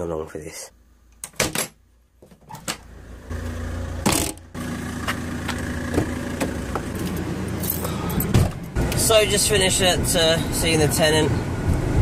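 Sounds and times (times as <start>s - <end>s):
car engine idling: 2.9s - 11.0s.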